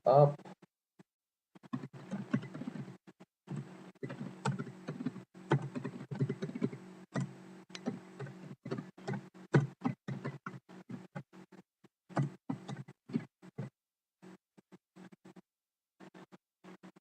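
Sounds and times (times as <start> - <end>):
typing on computer keyboard: 3.5 - 11.2.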